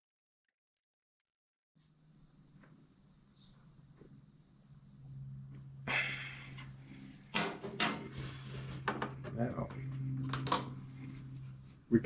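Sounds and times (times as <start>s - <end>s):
insects trilling: 1.8s - 12.0s
low hum: 2.5s - 12.0s.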